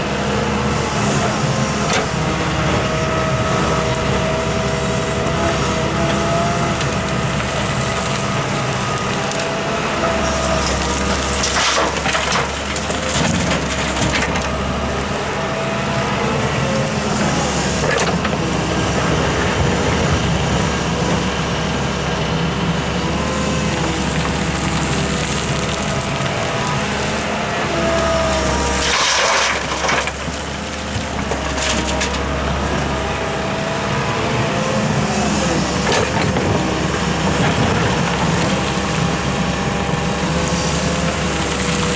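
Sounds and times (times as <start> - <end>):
excavator diesel engine: 0.0 - 41.9
bucket scraping earth and rock: 28.4 - 33.0.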